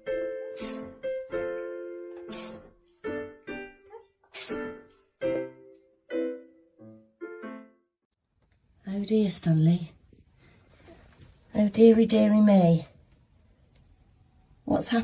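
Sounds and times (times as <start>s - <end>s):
piano-like keyboard notes: 0.0s - 7.9s.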